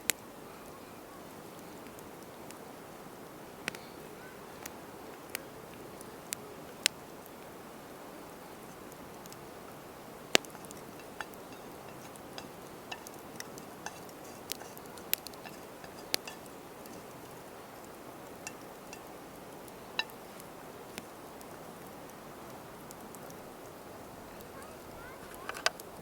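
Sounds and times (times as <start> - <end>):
steady low hiss: 0.0 - 26.0
sharp clicks and ticks: 10.3 - 23.8.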